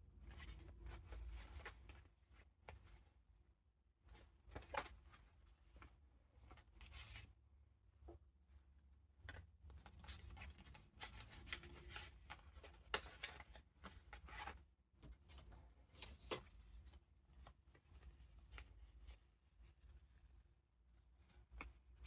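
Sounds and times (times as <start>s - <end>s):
paper rustling and crinkling: 9.8s - 14.6s.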